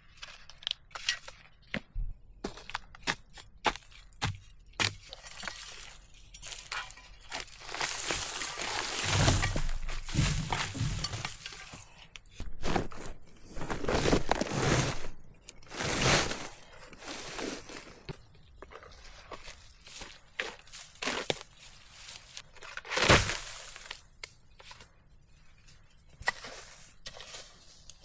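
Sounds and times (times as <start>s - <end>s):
rustling and crunching: 0.0s - 28.0s.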